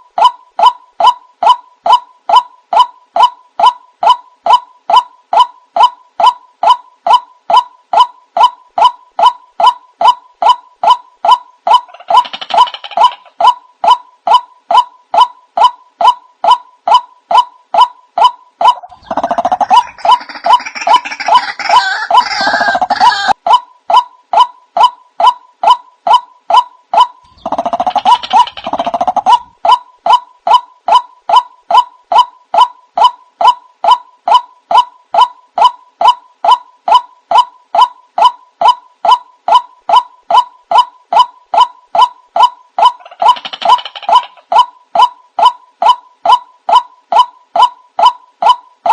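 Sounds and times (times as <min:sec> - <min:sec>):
bird calling monotonously: 0:00.0 - 0:48.9
harsh bird chorus calling: 0:27.2 - 0:29.5.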